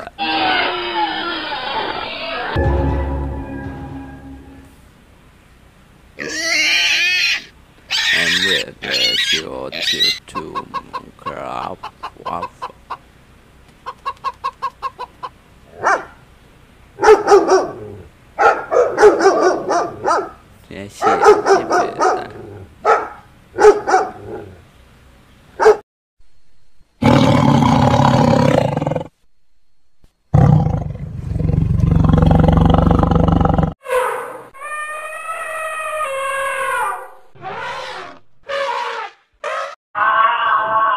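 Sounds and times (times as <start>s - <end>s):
elephant trumpeting: 6.2s - 10.2s, 33.8s - 40.9s
hen clucking: 8.0s - 13.1s, 13.8s - 15.4s
dog barking loudly: 15.7s - 16.2s, 17.0s - 20.4s, 21.0s - 24.5s, 25.6s - 25.8s
tiger roaring: 22.0s - 22.7s, 27.0s - 29.1s, 30.3s - 33.8s.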